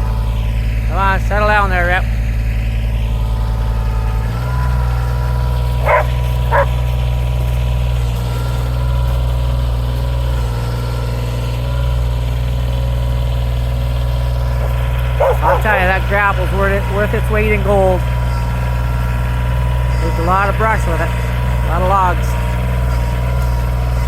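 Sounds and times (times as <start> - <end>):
vehicle engine running: 0.0 - 24.0
dog barking: 5.8 - 7.0, 14.5 - 15.9.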